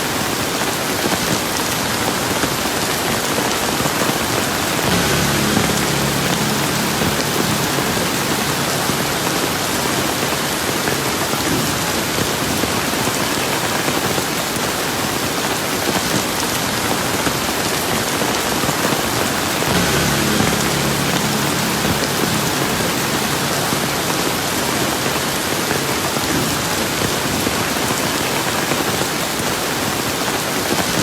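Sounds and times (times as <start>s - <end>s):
steady rain falling: 0.0s - 31.0s
faint low hum: 4.8s - 12.4s, 19.4s - 27.3s.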